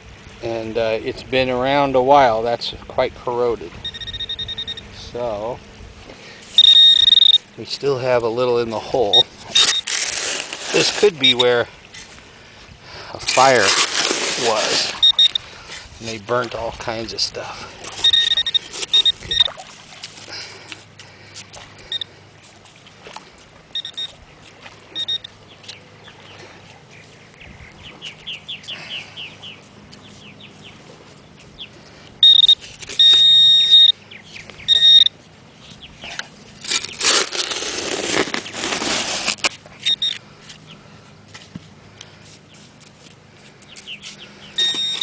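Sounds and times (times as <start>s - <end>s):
metal detector beeping: 3.8s - 5.0s, 6.5s - 7.5s, 9.0s - 9.9s, 10.7s - 11.6s, 14.5s - 15.5s, 18.0s - 19.6s, 21.8s - 22.1s, 23.7s - 24.2s, 24.9s - 25.3s, 32.2s - 34.0s, 34.6s - 35.2s, 39.8s - 40.2s, 44.6s - 45.0s
loud rushing scrape: 36.8s - 39.5s.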